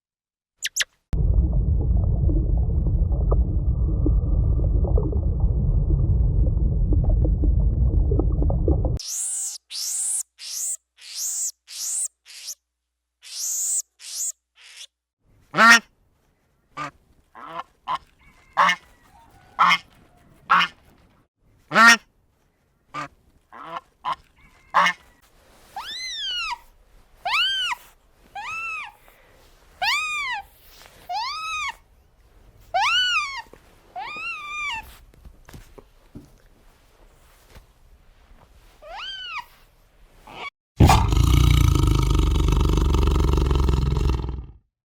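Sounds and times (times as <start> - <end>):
high falling animal squeaks: 0.6 - 0.9, 9.0 - 12.6, 25.8 - 26.6, 32.8 - 34.9, 38.8 - 39.6
rising and falling animal calls: 40.3 - 44.5.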